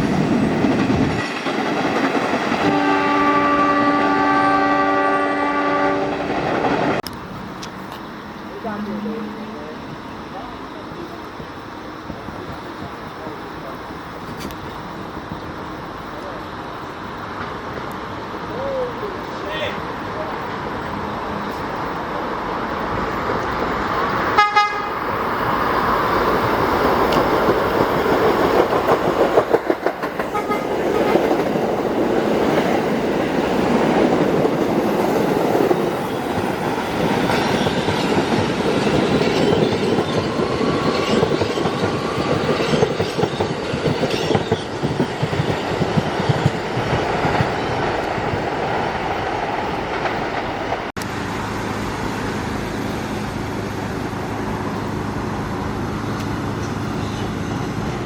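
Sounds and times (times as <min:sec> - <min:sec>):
train rumbling on rails: 0:00.0 - 0:58.0
train horn toot: 0:02.6 - 0:06.3, 0:24.3 - 0:25.0, 0:30.2 - 0:31.3
wheels clicking over rail joints: 0:25.0 - 0:58.0.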